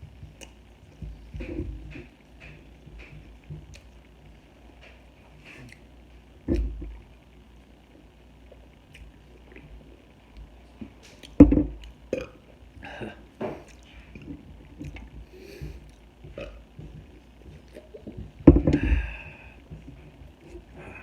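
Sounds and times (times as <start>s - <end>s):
person chewing and biting food: 3.6s - 4.1s.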